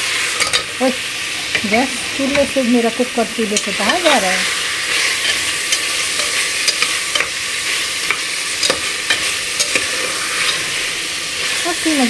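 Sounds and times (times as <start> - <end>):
food sizzling in a pot: 0.0 - 12.0
metal spatula scraping a pot: 3.6 - 11.8.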